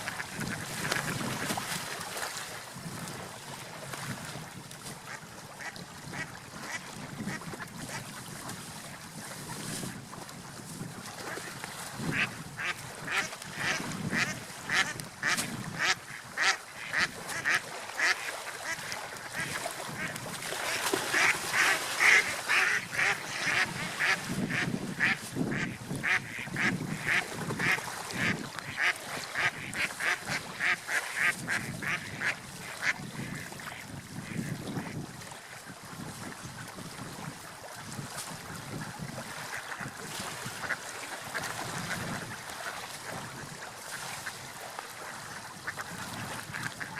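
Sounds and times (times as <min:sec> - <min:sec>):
wind: 0:00.0 - 0:46.9
ducks quacking: 0:12.1 - 0:33.5
water washing: 0:16.4 - 0:31.3.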